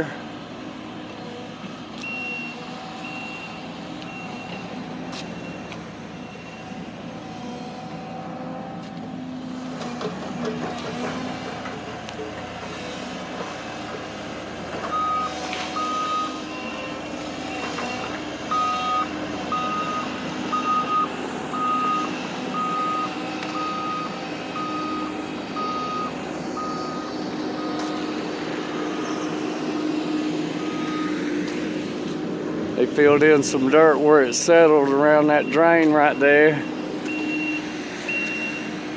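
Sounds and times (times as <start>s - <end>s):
diesel engine running: 0.0s - 38.9s
reversing alarm beeping: 2.0s - 7.0s, 14.9s - 28.2s, 30.6s - 31.3s, 34.6s - 38.8s.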